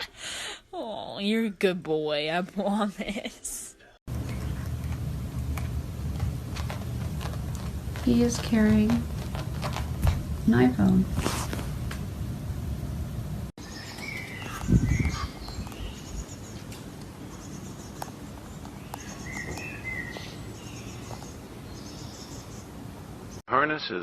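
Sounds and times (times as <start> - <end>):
birds chirping and trilling: 13.6 - 23.4.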